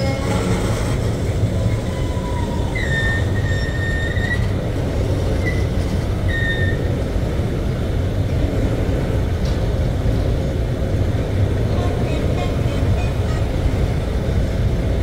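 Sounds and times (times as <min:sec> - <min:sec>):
wheels squealing: 0:00.0 - 0:07.0
train rumbling past: 0:00.0 - 0:15.0.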